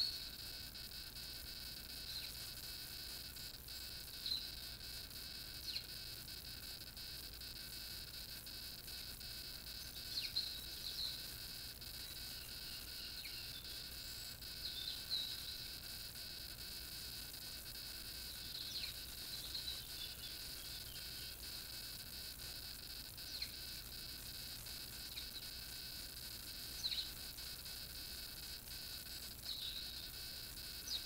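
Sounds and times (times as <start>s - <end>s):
small birds chirping: 0.0s - 0.5s, 1.9s - 2.5s, 4.1s - 4.7s, 5.6s - 6.1s, 9.6s - 16.0s, 17.8s - 21.6s, 23.2s - 24.2s, 24.9s - 25.8s, 26.5s - 27.5s, 29.2s - 31.0s
high-pitched whine: 0.0s - 6.0s.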